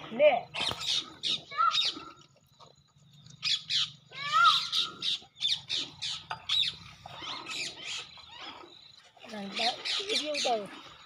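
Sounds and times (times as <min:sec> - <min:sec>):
bird squawks and chattering calls: 0:00.5 - 0:02.1, 0:03.4 - 0:08.8, 0:09.5 - 0:10.8.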